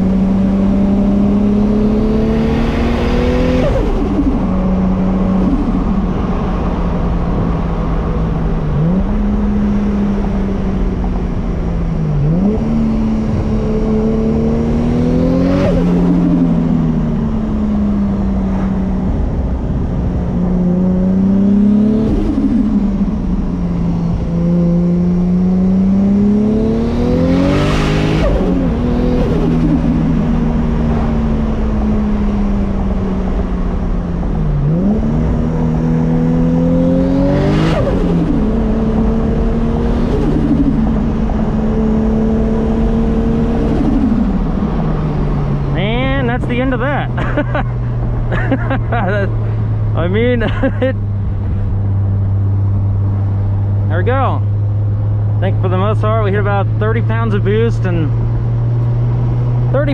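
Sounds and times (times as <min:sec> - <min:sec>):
car engine revving hard: 0:00.0 - 0:59.9.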